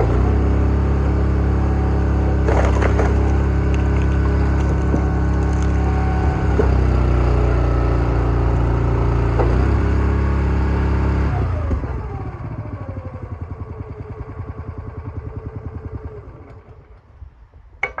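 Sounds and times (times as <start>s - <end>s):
small gas engine running: 0.0s - 17.1s.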